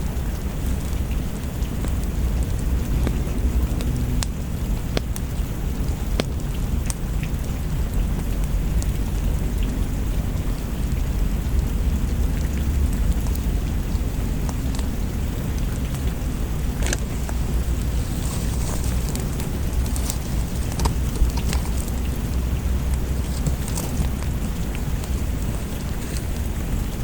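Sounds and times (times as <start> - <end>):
steady rain: 0.0 - 27.0.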